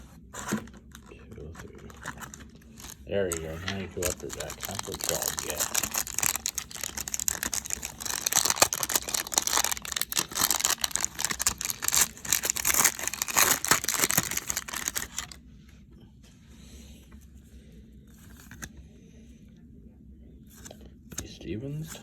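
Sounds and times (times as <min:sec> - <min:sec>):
wrapper tearing and crinkling: 0:01.8 - 0:15.4.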